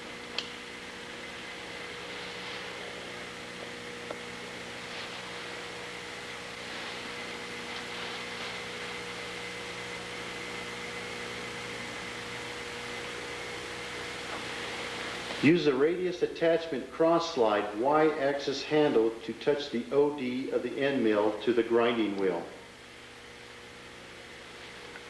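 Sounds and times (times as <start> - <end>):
equipment hum and hiss: 0.0 - 25.0.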